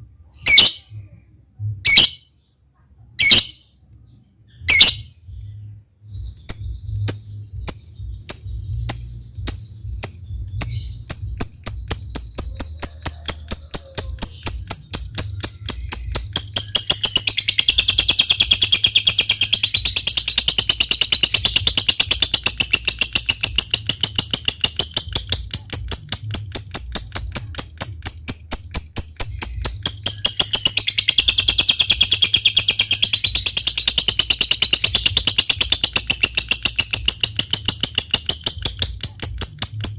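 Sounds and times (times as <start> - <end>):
high-pitched chattering bird trill: 0.4 - 1.0, 1.8 - 2.3, 3.2 - 3.7, 4.6 - 5.2, 6.2 - 39.9.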